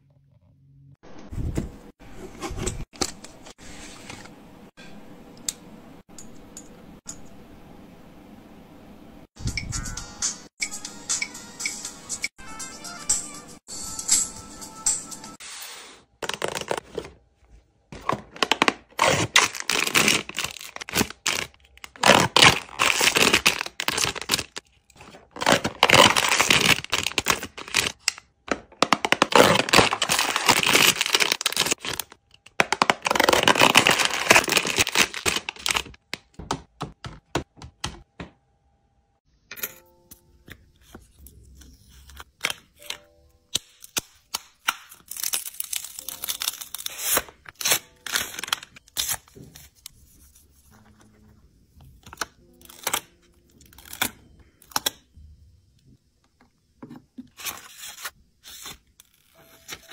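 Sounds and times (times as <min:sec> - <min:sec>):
foil bag tearing and crinkling: 0:18.0 - 0:28.0, 0:28.8 - 0:36.0, 0:44.9 - 0:49.2
plastic film peeling and crackling: 0:18.3 - 0:28.1, 0:28.9 - 0:36.0, 0:43.8 - 0:49.2.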